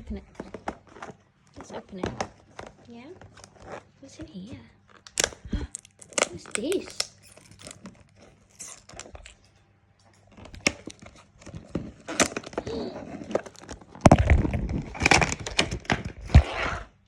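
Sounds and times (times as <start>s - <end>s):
packaging tearing and crackling: 4.9s - 9.5s, 10.3s - 16.7s.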